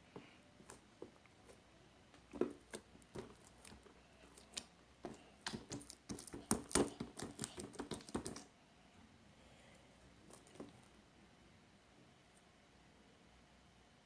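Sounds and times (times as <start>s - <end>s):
slime squelching in hands: 0.6s - 8.5s.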